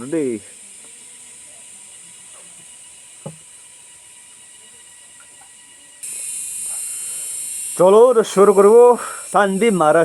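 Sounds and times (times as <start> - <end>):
steady high hiss: 0.0 - 10.0.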